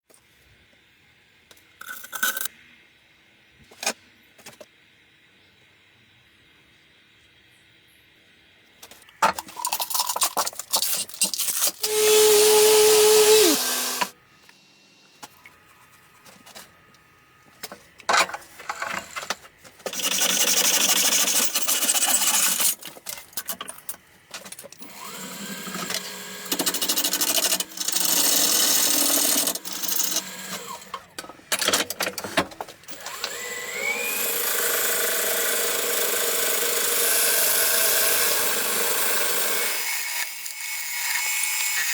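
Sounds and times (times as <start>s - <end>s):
power tools working wood: 11.8s - 14.2s, 19.9s - 22.8s, 24.8s - 30.9s, 32.9s - 41.9s.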